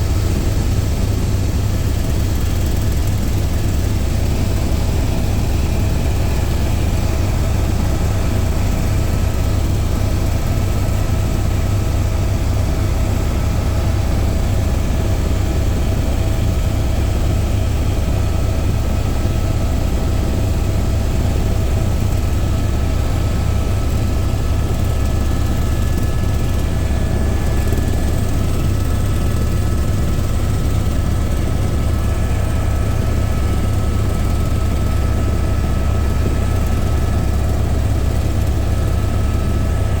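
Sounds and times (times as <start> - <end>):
helicopter engine and rotor: 0.0 - 40.0.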